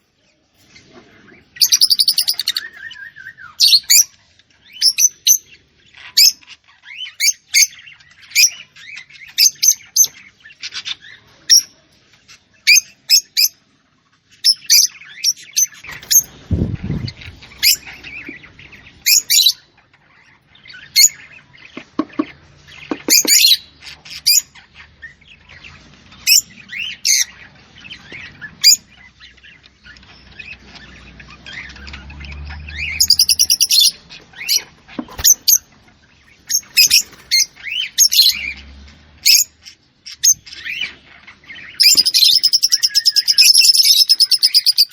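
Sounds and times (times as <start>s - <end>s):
small bird chirping: 0.0s - 44.9s
buzzy bird trill: 1.6s - 4.0s, 30.0s - 35.7s, 41.6s - 44.9s.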